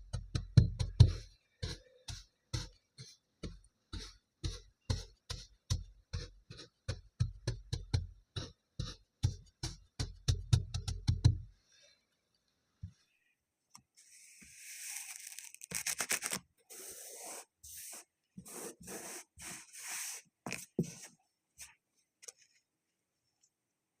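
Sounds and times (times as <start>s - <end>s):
tool scraping kinetic sand: 14.0s - 21.1s.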